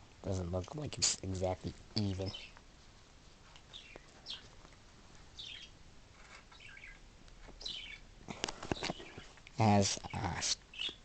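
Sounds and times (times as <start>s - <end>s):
small bird chirping: 2.0s - 2.6s, 3.6s - 4.6s, 5.3s - 11.0s.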